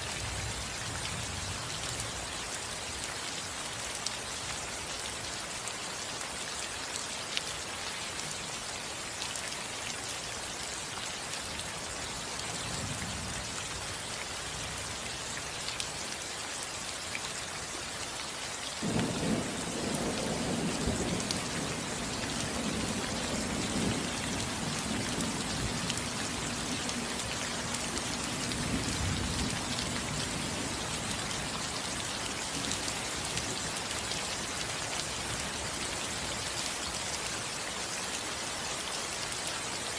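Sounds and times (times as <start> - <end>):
rain falling on a roof: 0.0 - 39.9
thunder rumbling: 18.8 - 27.1.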